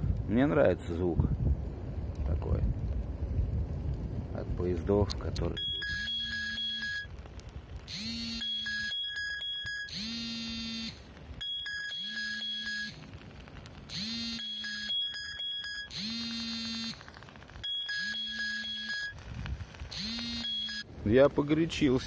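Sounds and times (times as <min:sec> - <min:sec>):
electronic ringtone melody: 0:05.6 - 0:07.1, 0:07.9 - 0:13.0, 0:13.9 - 0:16.9, 0:17.6 - 0:19.2, 0:19.9 - 0:20.9.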